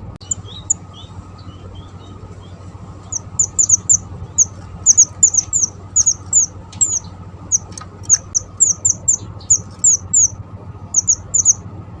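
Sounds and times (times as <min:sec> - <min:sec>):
low hum: 0:00.0 - 0:12.0
high bird chirps: 0:00.2 - 0:11.6.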